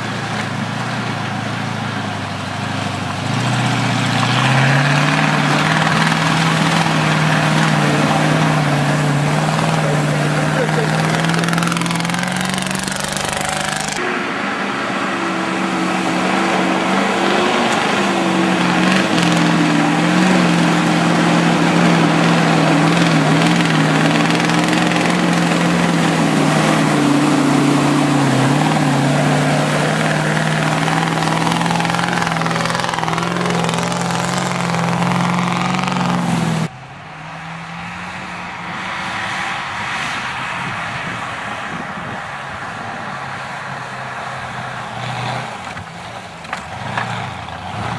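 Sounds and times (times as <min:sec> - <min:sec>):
truck engine droning: 0:00.0 - 0:47.9.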